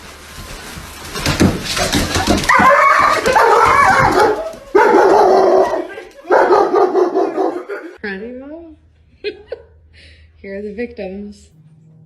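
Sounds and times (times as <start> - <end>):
dog whining or howling: 2.4 - 6.0.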